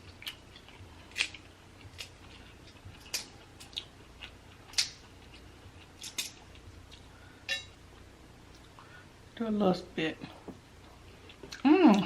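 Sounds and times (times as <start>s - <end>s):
eating clicks and smacks: 4.6s - 5.0s.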